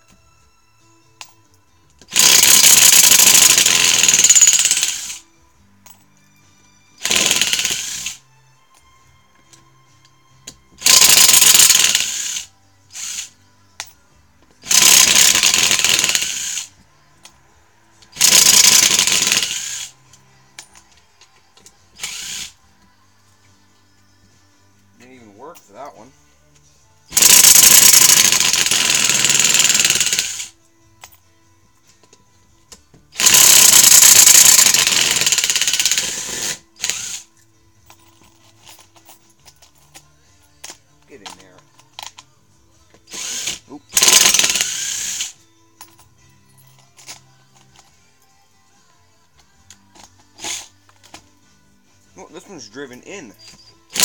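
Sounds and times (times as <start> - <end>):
impact driver hammering: 2.1 - 5.2, 7.0 - 8.2, 18.2 - 19.8, 27.1 - 30.5.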